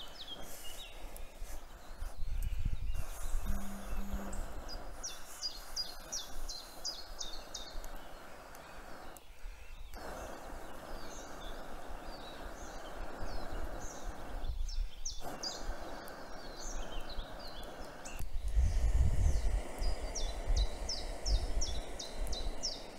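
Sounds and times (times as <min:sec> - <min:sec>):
songbirds singing: 0:00.0 - 0:22.9
steady rushing hiss: 0:00.0 - 0:22.9
low rumble: 0:03.4 - 0:04.5.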